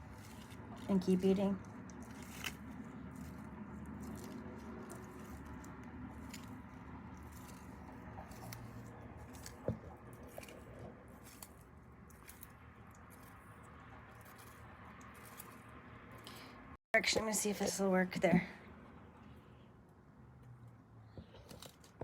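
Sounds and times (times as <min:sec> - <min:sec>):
tortoise chewing leaves: 0:00.0 - 0:16.6, 0:18.9 - 0:22.0.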